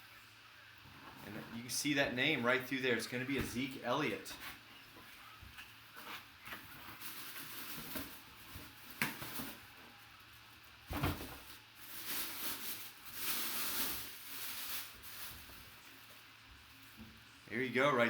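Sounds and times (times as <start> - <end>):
packaging rustling: 5.9 - 9.7, 10.9 - 16.2.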